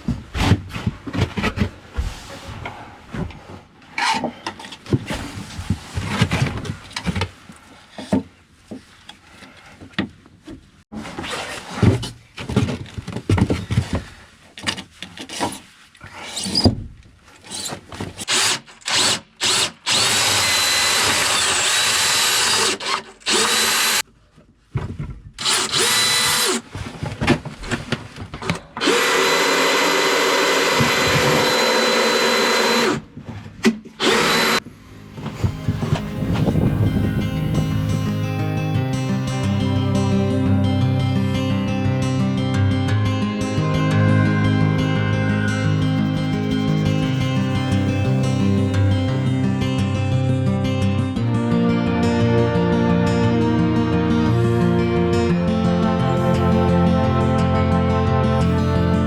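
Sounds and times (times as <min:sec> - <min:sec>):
power drill running: 0:18.3 - 0:24.0, 0:25.4 - 0:26.6, 0:28.8 - 0:33.0, 0:34.0 - 0:34.6.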